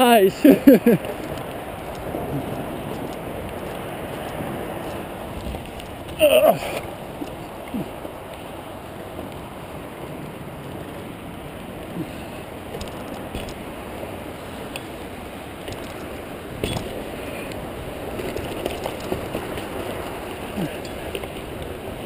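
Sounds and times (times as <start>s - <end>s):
bicycle tyres rushing on dirt: 0.0s - 22.0s
bike rattling clicks and knocks: 0.5s - 8.6s, 11.9s - 22.0s.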